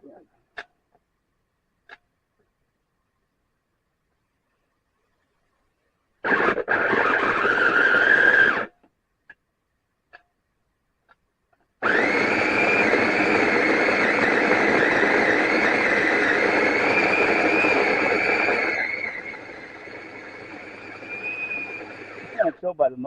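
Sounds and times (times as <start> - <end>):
food processor chopping cheese: 11.8 - 22.4.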